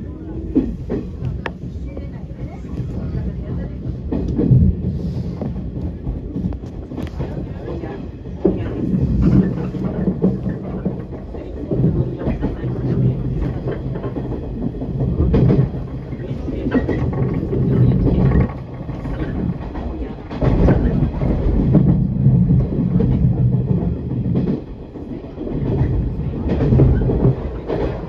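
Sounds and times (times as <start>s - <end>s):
train wheels rumbling: 0.0s - 28.0s
wheels clacking over rail joints: 5.6s - 28.0s.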